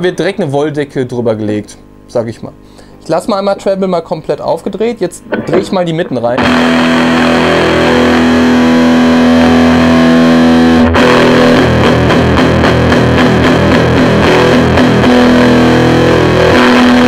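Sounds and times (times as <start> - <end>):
distorted electric guitar: 3.3 - 17.0.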